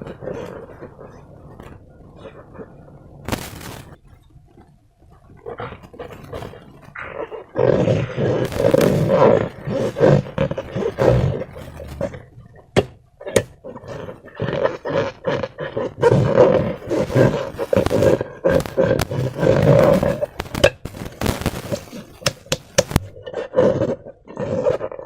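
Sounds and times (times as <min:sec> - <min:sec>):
slime squelching: 0:00.0 - 0:23.3
rubber balloon squeaking: 0:07.6 - 0:23.2.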